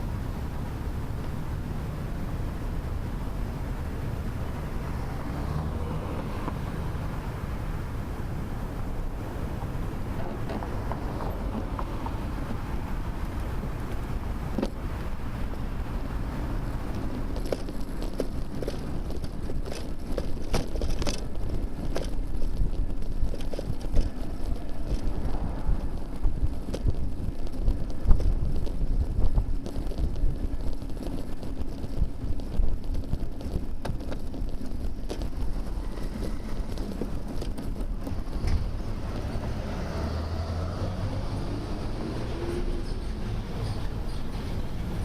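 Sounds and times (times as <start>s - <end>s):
passing vehicle hum: 0.0s - 45.0s
wind noise on microphone: 0.0s - 45.0s
bicycle clicks and rattles: 13.0s - 39.4s.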